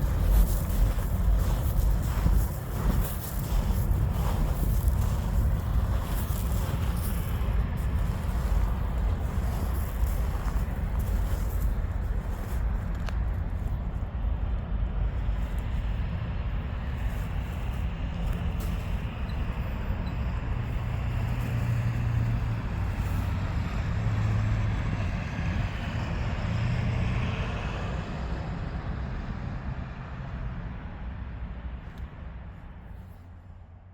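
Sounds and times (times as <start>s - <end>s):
train rolling past: 0.0s - 13.1s.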